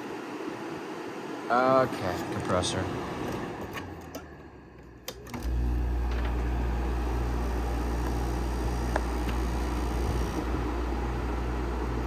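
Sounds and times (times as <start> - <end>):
air conditioner compressor humming: 0.0 - 12.0
rattling vibration: 5.4 - 12.0.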